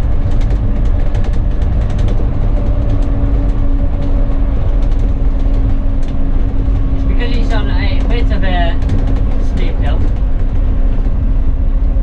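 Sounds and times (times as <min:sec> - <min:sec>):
bus engine hum: 0:00.0 - 0:12.0
road rumble: 0:00.0 - 0:12.0
rattles and clicks of fittings: 0:00.2 - 0:11.2.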